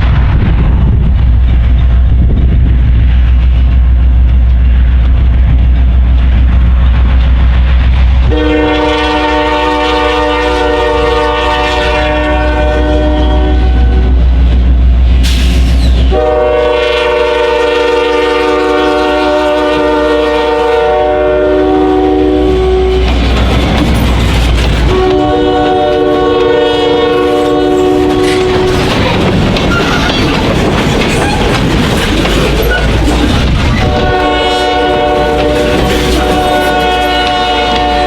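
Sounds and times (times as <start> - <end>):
diesel locomotive engine rumbling: 0.0 - 38.0
locomotive horn blasts: 8.3 - 14.2, 16.1 - 23.1, 24.8 - 29.0, 33.8 - 38.0.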